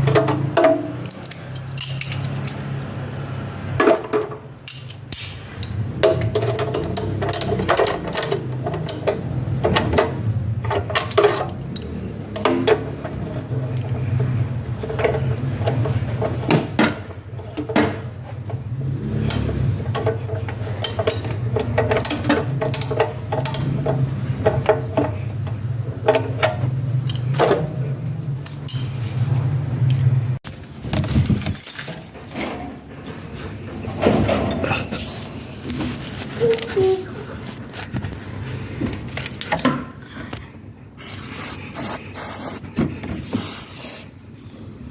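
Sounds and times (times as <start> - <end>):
metal tools clinking: 1.0 - 3.4, 26.0 - 29.6, 31.0 - 32.7.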